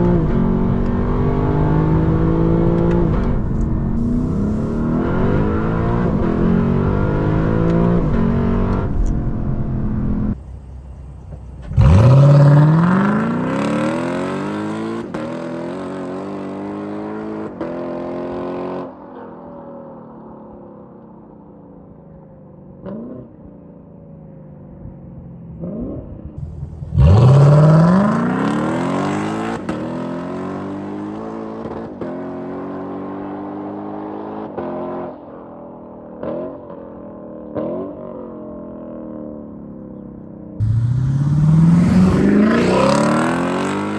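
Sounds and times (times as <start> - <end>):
car engine accelerating hard: 0.0 - 19.2, 25.6 - 35.2, 40.6 - 43.9.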